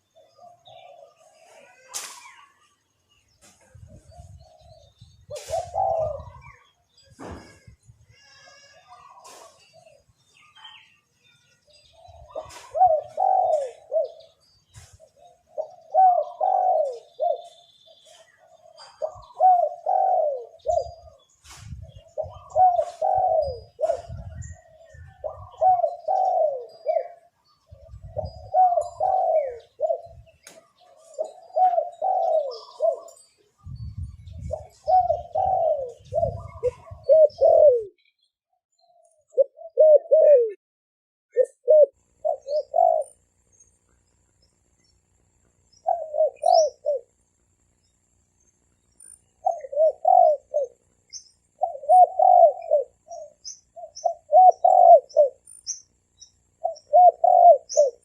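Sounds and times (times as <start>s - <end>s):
dove cooing: 0.0s - 1.9s, 3.6s - 7.8s, 11.8s - 38.0s, 39.3s - 40.6s, 41.3s - 43.3s, 45.8s - 47.2s, 49.4s - 55.6s, 56.5s - 58.0s.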